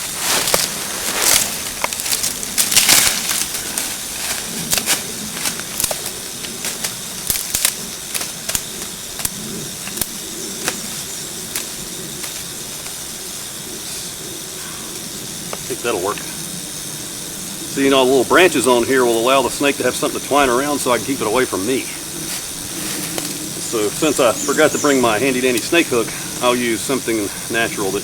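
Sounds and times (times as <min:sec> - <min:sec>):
twigs and dry leaves snapping: 0:00.0 - 0:13.1, 0:22.2 - 0:24.6
steady hiss: 0:00.0 - 0:28.0.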